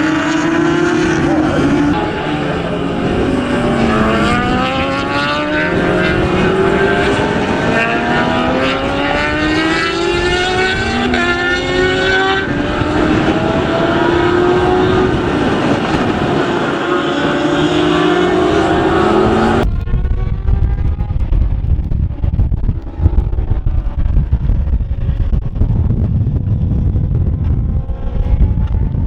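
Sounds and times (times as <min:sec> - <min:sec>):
racing motorcycle engines revving: 0:00.0 - 0:20.9.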